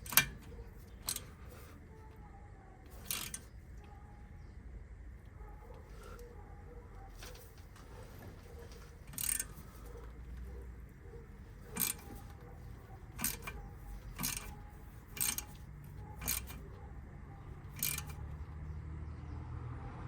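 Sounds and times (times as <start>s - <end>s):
metallic clicks of tools: 0.0s - 1.8s, 2.9s - 3.5s, 9.0s - 16.8s, 17.6s - 18.5s.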